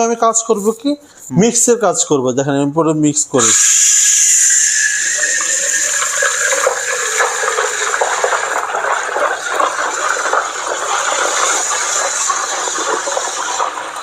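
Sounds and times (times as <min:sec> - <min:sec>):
steam wand hissing into jug: 0:03.4 - 0:14.0.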